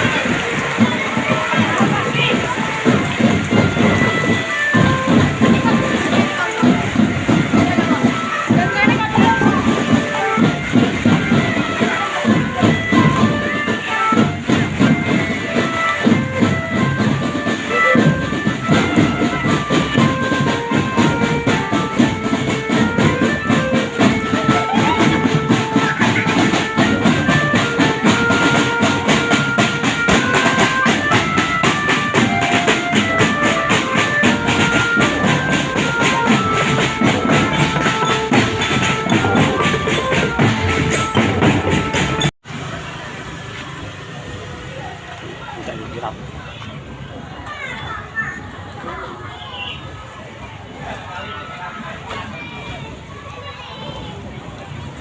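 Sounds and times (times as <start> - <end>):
fast dense drumming: 0.0 - 42.3
high melody line: 0.0 - 42.3.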